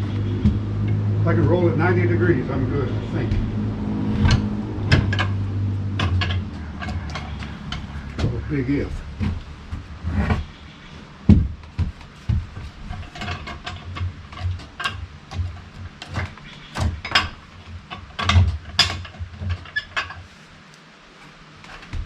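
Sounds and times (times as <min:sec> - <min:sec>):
log knocking and scraping: 0:00.0 - 0:22.0
heavy thud: 0:02.3 - 0:16.0.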